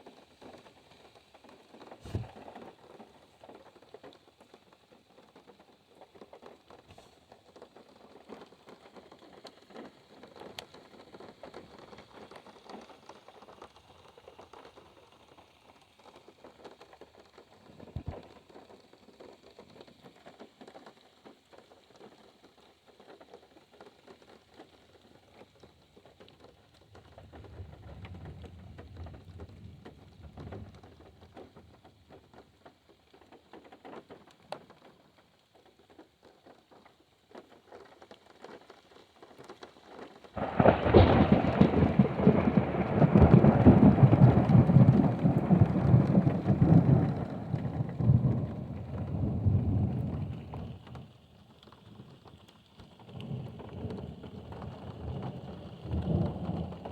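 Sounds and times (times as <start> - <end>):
rain pattering on a car: 0.0 - 56.9
distant thunder rumble: 26.8 - 32.3, 40.4 - 51.1, 53.1 - 56.9
loud thunder clap: 40.4 - 50.8.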